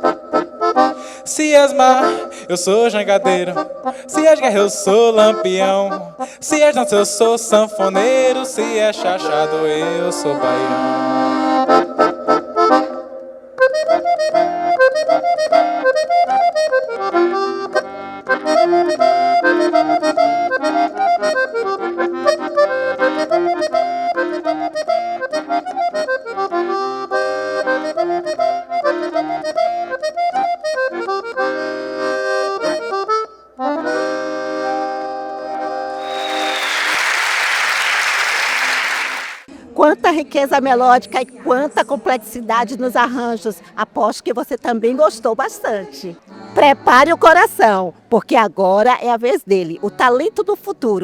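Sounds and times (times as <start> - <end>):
accordion melody: 0.0 - 39.5, 46.0 - 51.0
applause: 36.0 - 39.5.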